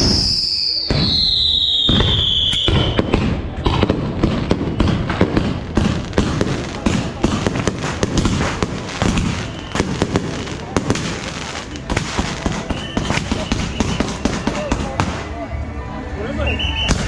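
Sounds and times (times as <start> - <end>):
high descending whistle: 0.0 - 3.0
fireworks popping and banging: 0.0 - 15.5.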